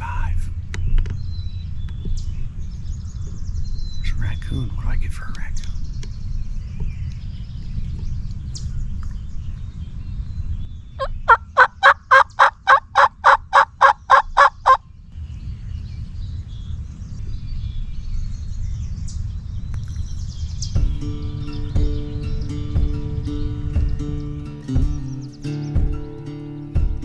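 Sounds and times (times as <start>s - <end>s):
low wind noise: 0.0s - 27.0s
turkey yelping: 11.0s - 14.8s
music: 20.8s - 27.0s.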